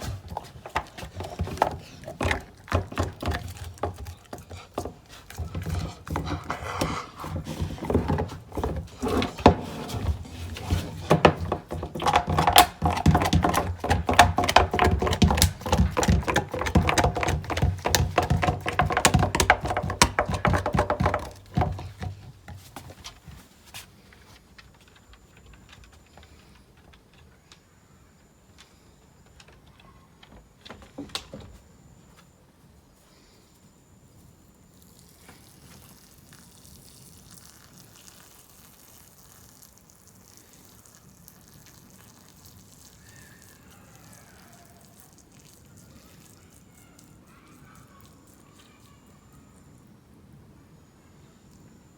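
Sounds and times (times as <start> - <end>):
dog crunching bones: 0.0 - 23.1.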